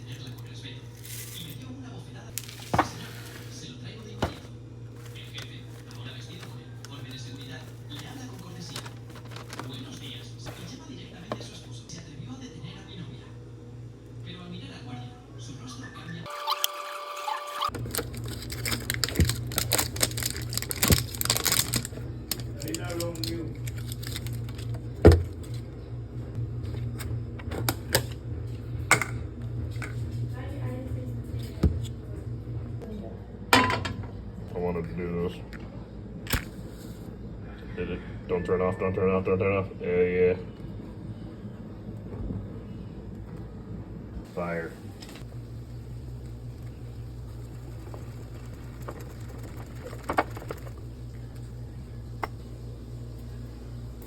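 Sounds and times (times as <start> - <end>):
steady low hum: 0.0 - 16.3, 17.7 - 54.0
utensils clicking and clinking: 17.7 - 24.7
kitchen utensils knocking: 33.6 - 34.1.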